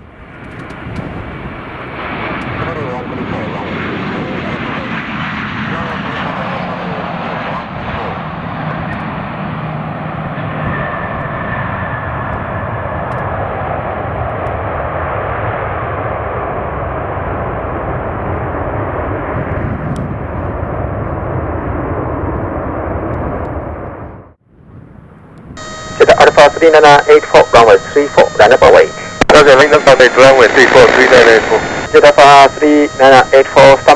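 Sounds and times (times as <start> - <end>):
aircraft engines roaring: 0.0 - 21.8, 25.3 - 33.9
faint high tone: 25.6 - 33.9.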